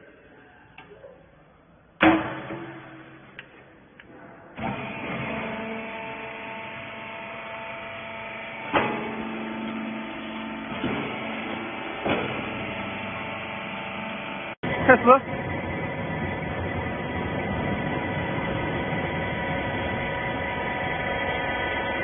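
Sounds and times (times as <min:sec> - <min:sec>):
loud metallic clank: 0:02.0 - 0:03.4
hydraulic power unit humming: 0:02.0 - 0:22.0.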